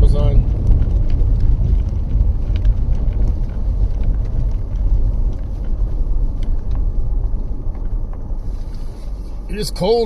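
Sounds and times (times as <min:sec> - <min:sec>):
low road rumble: 0:00.0 - 0:10.0
faint irregular clicks: 0:00.5 - 0:09.3.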